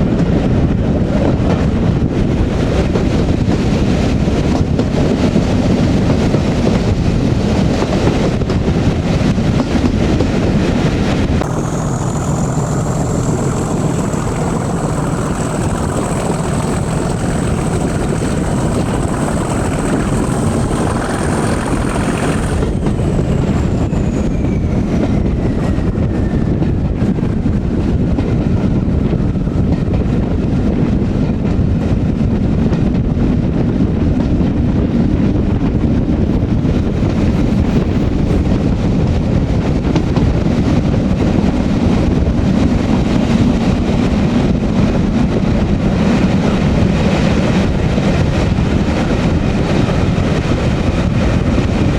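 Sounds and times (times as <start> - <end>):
diesel locomotive engine rumble: 0.0 - 51.9
running train: 0.0 - 51.9
turbocharger whistle: 11.4 - 26.6.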